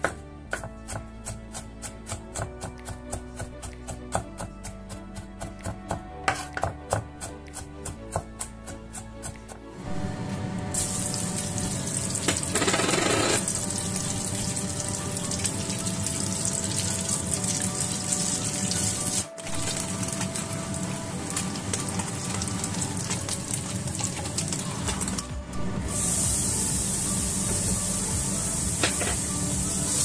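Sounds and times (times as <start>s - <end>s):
food sizzling in hot oil: 10.7s - 20.7s, 25.8s - 30.0s.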